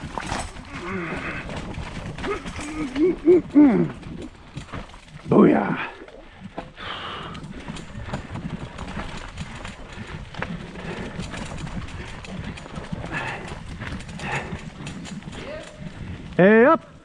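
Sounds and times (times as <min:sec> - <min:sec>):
wheels knocking loose stones: 0:00.0 - 0:16.8
bike rattling: 0:00.0 - 0:17.0
bike tyres rumbling on rock: 0:00.0 - 0:17.0.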